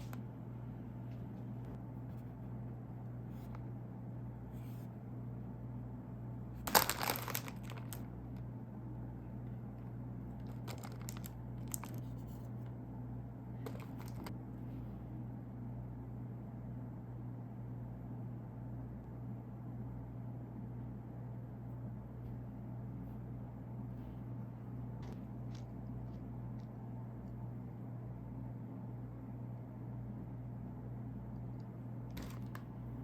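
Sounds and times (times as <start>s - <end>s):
plastic packaging crinkling: 6.6s - 8.1s, 10.4s - 12.5s, 13.6s - 14.3s, 32.2s - 32.7s.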